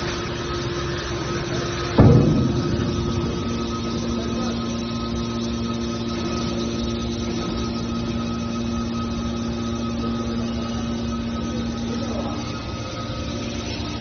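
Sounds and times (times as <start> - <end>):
hydraulic machine hum and whine: 0.0 - 14.0.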